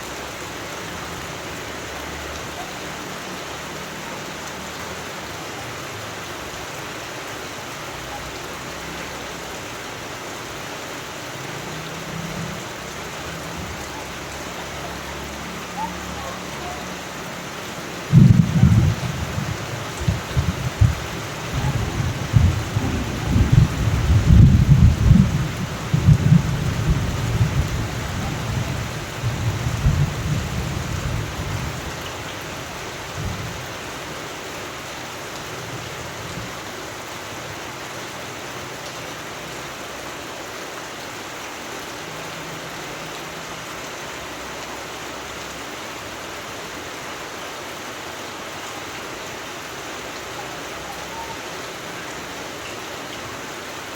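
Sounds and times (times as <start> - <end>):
steady rain: 0.0 - 53.9
low rolling thunder: 18.1 - 31.9.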